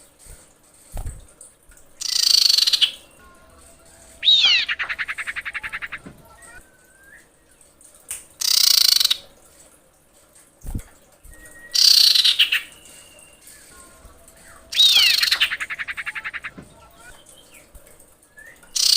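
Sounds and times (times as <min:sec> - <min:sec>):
harsh hissing bird calls: 0:02.0 - 0:06.6, 0:08.4 - 0:09.2, 0:11.7 - 0:17.7
bird whistle and trill: 0:02.0 - 0:07.5, 0:08.4 - 0:09.2, 0:11.3 - 0:17.7, 0:18.3 - 0:18.9.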